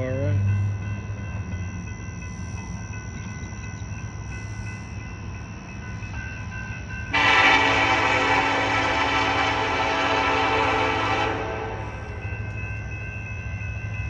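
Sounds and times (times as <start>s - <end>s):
diesel locomotive rumbling: 0.0s - 14.0s
train air horn: 7.1s - 12.1s.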